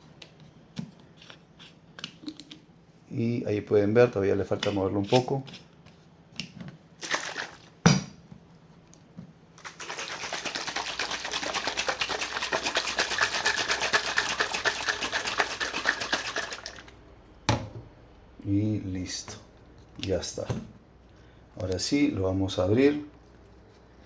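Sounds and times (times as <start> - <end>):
cup being shaken rhythmically: 9.6 - 16.9.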